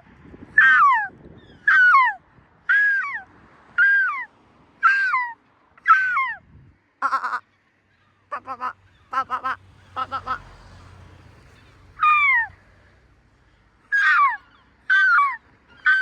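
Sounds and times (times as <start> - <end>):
seagull wailing calls: 0.6 - 6.4, 7.0 - 10.5, 12.0 - 12.6, 13.8 - 16.0
seagull stuttering call: 8.3 - 10.5, 13.9 - 16.0.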